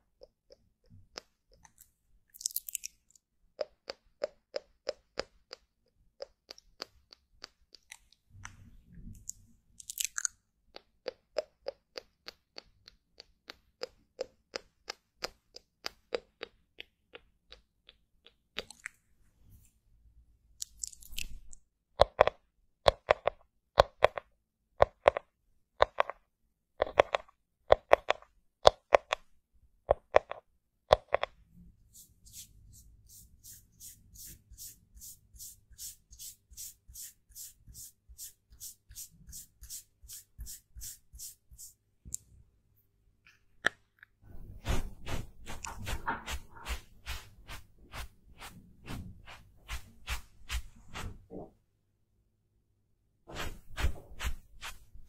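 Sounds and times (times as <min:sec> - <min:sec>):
soft brush strokes: 0:31.6 - 0:41.8, 0:44.3 - 0:51.2, 0:53.3 - 0:55.0
scratchy strokes: 0:31.9 - 0:41.8, 0:44.4 - 0:51.2, 0:53.3 - 0:55.0.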